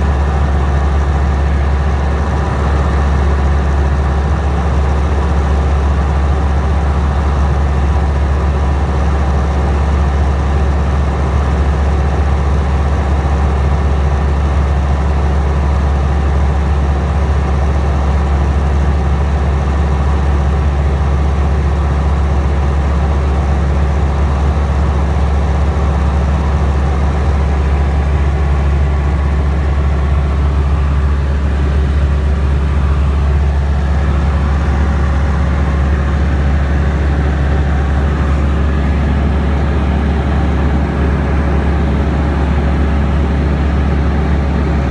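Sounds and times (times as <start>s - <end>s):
light aircraft engine droning: 0.0s - 44.9s.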